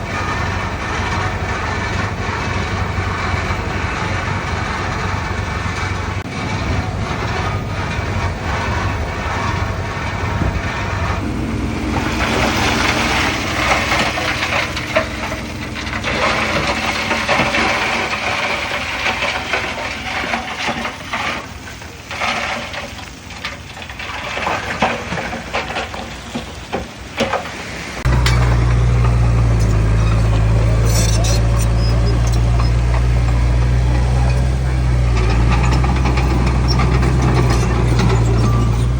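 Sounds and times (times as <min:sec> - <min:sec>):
gritty scraping noise: 0:00.0 - 0:38.9
heavy diesel machinery engine hum: 0:00.0 - 0:38.9
second engine: 0:00.0 - 0:38.9
machines knocking: 0:28.0 - 0:38.9.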